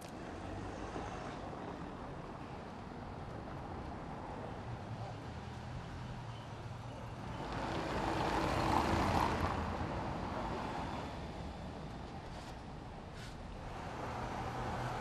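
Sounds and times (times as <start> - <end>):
road vehicle passing by: 7.2 - 11.5, 13.6 - 15.0.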